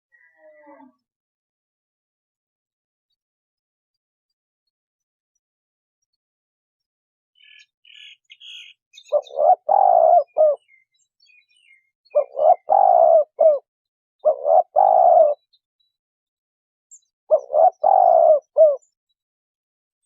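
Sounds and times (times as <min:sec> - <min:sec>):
small bird chirping: 0:07.4 - 0:16.0, 0:16.9 - 0:19.2
dove cooing: 0:09.1 - 0:10.8, 0:12.2 - 0:15.4, 0:17.3 - 0:18.9.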